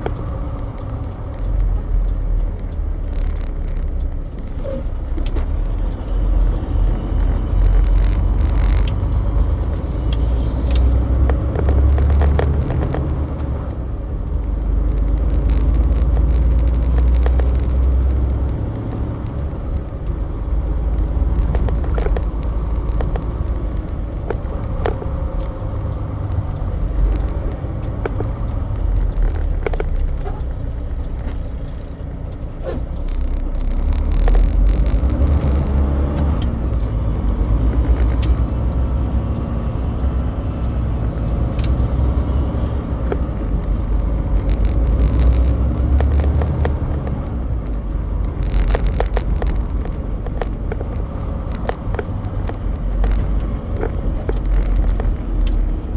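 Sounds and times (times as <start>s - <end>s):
sharp clicks and knocks: 0.0s - 39.4s, 40.7s - 55.9s
diesel truck engine rumble: 0.0s - 55.9s
road noise: 0.0s - 55.9s.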